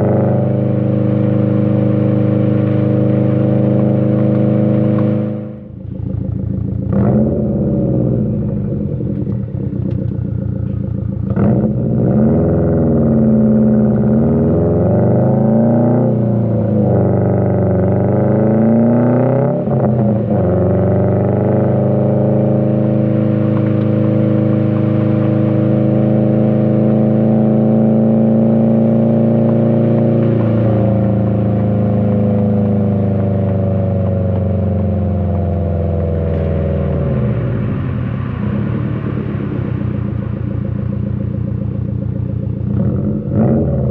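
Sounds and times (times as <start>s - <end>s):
car engine revving while driving: 0.0s - 43.9s
exhaust cracks: 4.2s - 15.2s, 21.4s - 43.9s.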